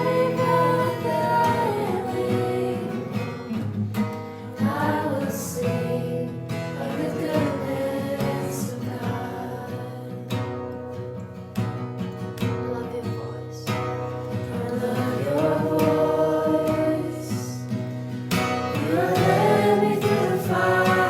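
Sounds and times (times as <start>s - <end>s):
person singing: 0.0s - 3.2s, 14.5s - 17.6s, 18.8s - 21.0s
strummed acoustic guitar: 0.0s - 21.0s.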